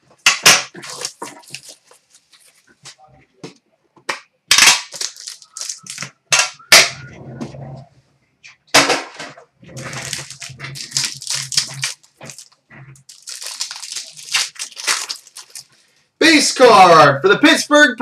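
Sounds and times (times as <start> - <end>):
packaging snapping: 0.4 - 2.0, 4.5 - 6.9, 9.7 - 15.8
wrapper crackling and tearing: 0.7 - 2.6, 4.5 - 6.1, 9.7 - 15.8
cards being handled: 4.5 - 6.5.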